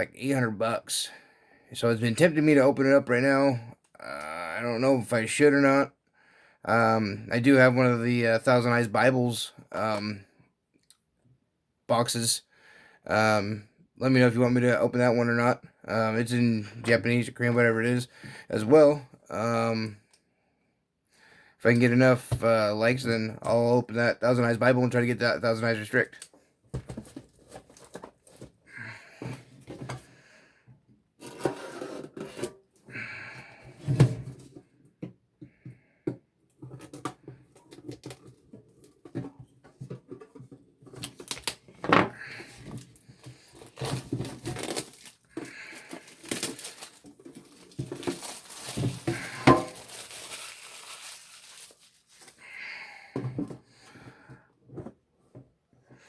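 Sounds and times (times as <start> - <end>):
packaging tearing and rustling: 41.0 - 41.7, 42.8 - 52.4.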